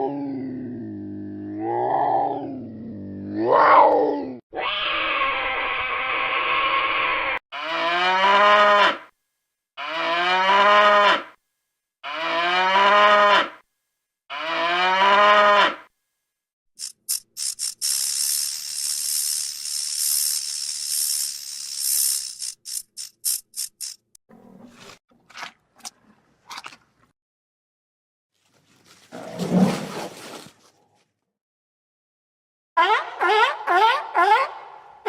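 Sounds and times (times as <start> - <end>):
cow mooing: 7.6 - 9.0, 9.8 - 11.4, 12.0 - 13.6, 14.3 - 15.8
high hissing crackling noise: 16.8 - 24.0.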